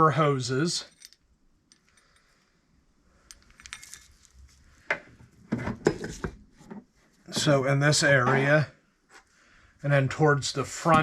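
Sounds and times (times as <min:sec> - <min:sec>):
metal hardware clinking: 0:00.8 - 0:02.2, 0:03.3 - 0:04.3.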